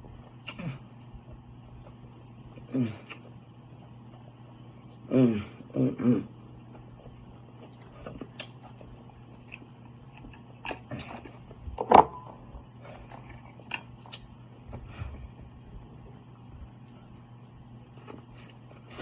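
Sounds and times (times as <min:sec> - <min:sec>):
faint low hum: 0:00.0 - 0:19.0
person chewing and biting: 0:06.6 - 0:11.6, 0:17.0 - 0:19.0.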